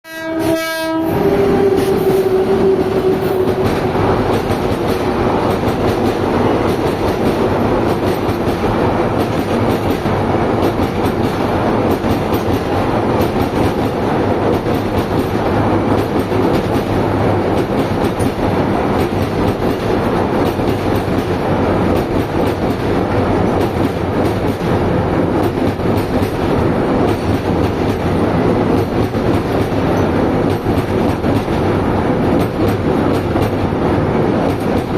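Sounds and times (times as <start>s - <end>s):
train horn: 0.0s - 4.0s
train wagons running on rails: 0.1s - 34.9s.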